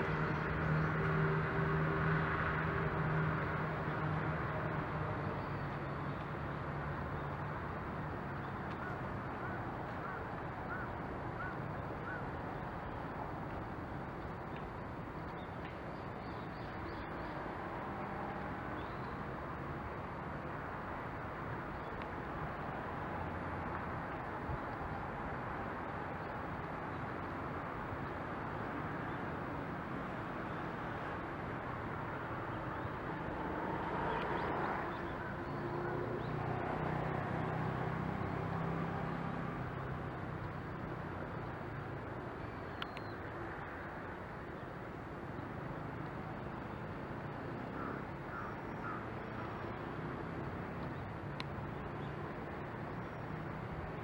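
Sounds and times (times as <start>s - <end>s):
low engine hum: 0.0s - 7.0s
distant road traffic: 0.0s - 54.0s.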